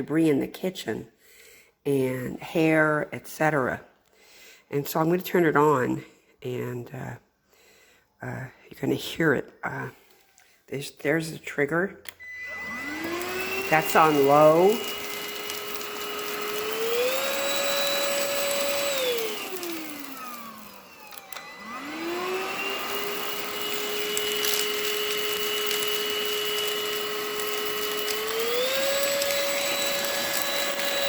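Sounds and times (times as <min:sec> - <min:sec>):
vacuum motor whining: 0:12.1 - 0:31.0.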